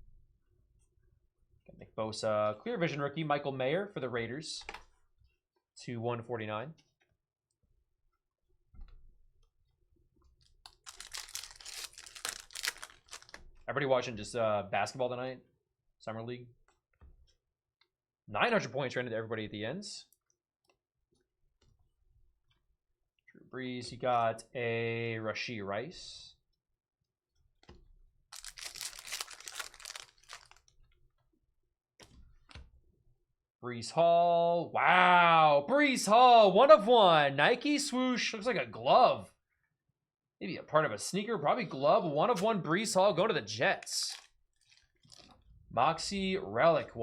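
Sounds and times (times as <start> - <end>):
packaging crinkling: 10.7 - 13.4, 28.3 - 30.7, 44.0 - 45.4
wrapper ripping open: 10.7 - 13.4, 28.3 - 30.7, 44.0 - 45.4.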